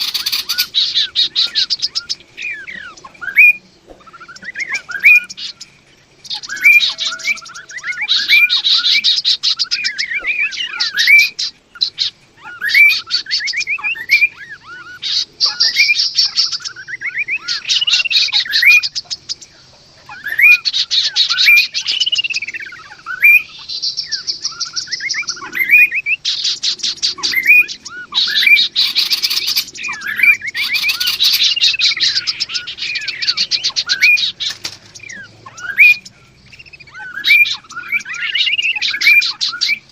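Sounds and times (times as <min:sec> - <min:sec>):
fast chattering bird trills: 0:00.0 - 0:03.6, 0:20.1 - 0:39.9
birds calling with slurred whistles: 0:00.0 - 0:39.9.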